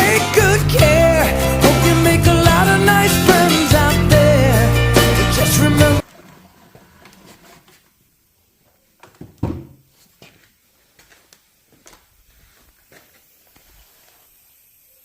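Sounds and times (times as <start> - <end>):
background song: 0.0 - 6.1.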